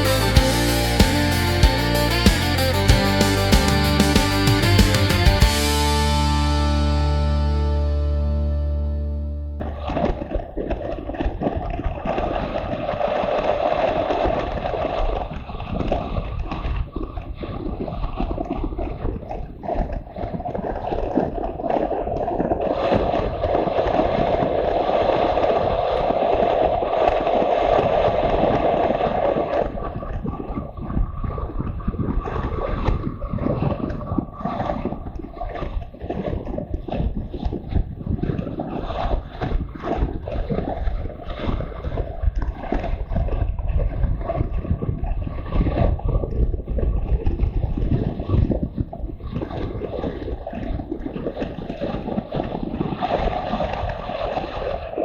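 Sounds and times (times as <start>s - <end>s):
wind buffeting microphone: 27.7s - 55.0s.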